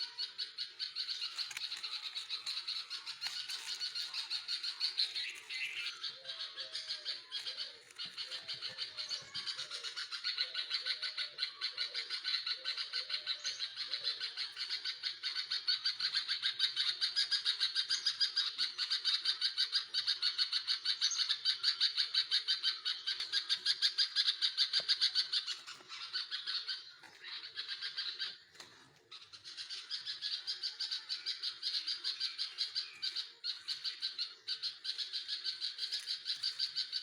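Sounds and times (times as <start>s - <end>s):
baby birds calling: 0.0s - 37.0s.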